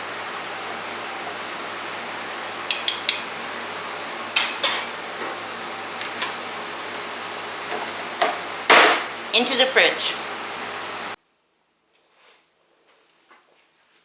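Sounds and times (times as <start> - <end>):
dishes and utensils clattering: 4.4 - 4.9.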